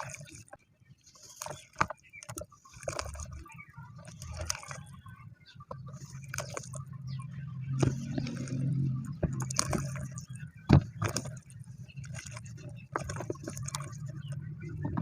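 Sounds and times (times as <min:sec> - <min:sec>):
gritty material crunching: 0:00.0 - 0:15.0
steady low hum: 0:03.3 - 0:15.0.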